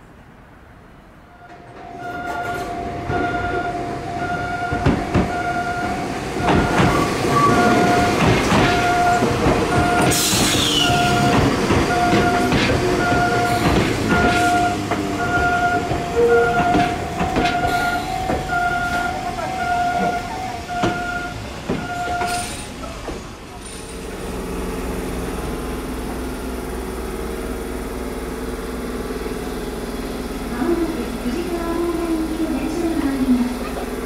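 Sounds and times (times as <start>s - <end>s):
level crossing warning bell: 1.4s - 10.2s, 10.8s - 22.8s
train wheel squeal: 4.3s - 23.0s
train wheels clattering over rail joints: 4.4s - 26.3s.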